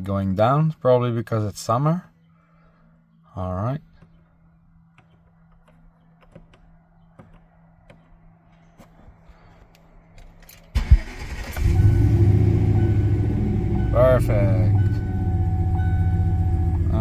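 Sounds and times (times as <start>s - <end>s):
truck engine cranking and idling: 9.7s - 17.0s.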